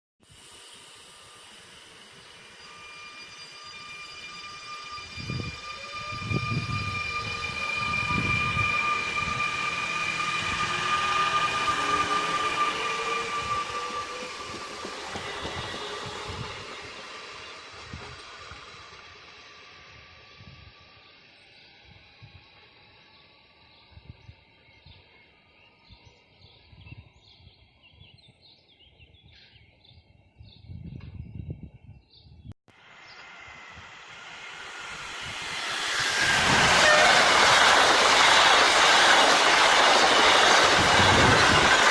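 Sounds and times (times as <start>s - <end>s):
high-pitched whine: 0.3s - 25.6s, 32.7s - 41.9s
faint rising tones: 0.4s - 23.3s, 32.8s - 41.0s
train rumbling: 1.2s - 27.7s, 32.8s - 41.9s.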